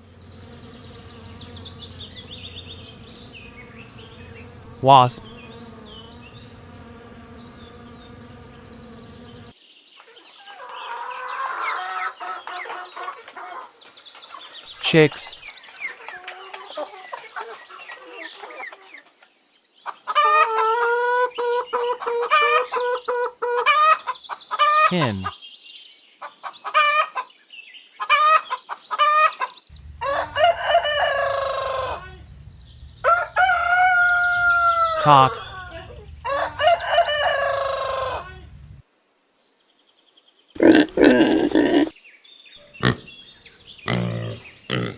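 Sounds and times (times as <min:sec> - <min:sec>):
wasp buzzing: 0:00.2 - 0:09.5, 0:29.7 - 0:38.8
chicks peeping: 0:10.4 - 0:19.1, 0:29.7 - 0:38.8
hen calling: 0:29.7 - 0:38.8.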